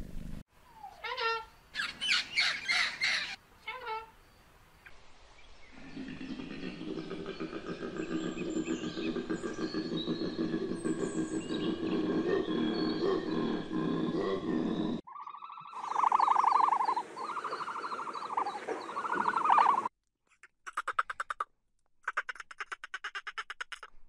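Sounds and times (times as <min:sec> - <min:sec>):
animal pulsed calls: 0:05.9 - 0:19.9
faint bird chirps: 0:15.1 - 0:19.9.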